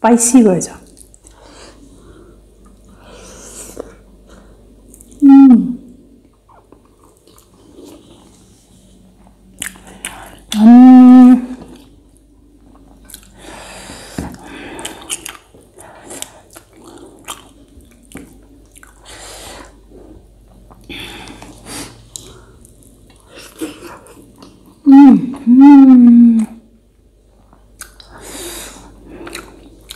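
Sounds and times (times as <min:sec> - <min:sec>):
person humming: 0:05.2 - 0:05.9, 0:10.5 - 0:11.7, 0:24.8 - 0:26.7
person chewing and lip-smacking: 0:09.6 - 0:10.7, 0:11.5 - 0:13.4, 0:14.3 - 0:25.5, 0:27.5 - 0:28.2, 0:29.2 - 0:29.9.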